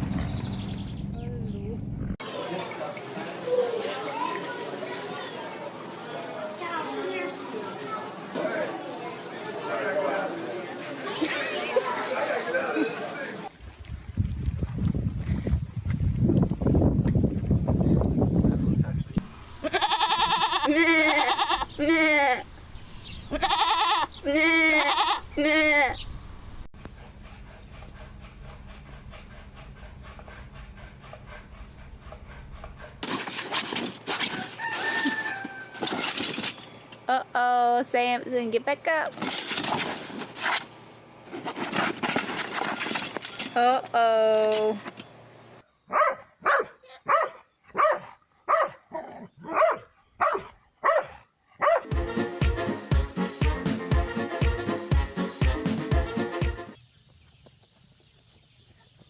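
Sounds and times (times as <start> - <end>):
dog barking: 45.9 - 51.9.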